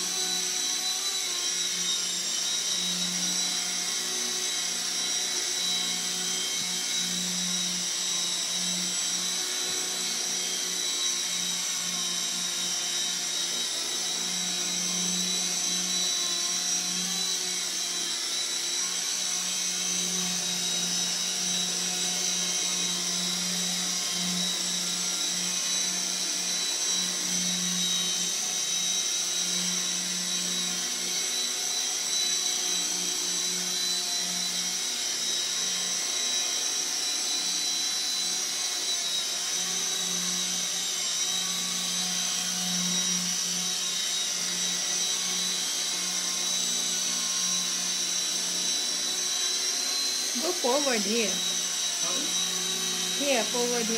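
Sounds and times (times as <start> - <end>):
high-pitched motor whine: 0.0 - 53.9.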